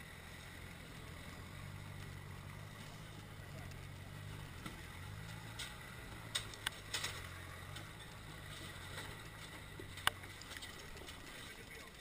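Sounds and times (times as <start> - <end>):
engine running at low revs: 0.0 - 12.0
sharp clicks: 5.3 - 8.3, 9.9 - 11.2.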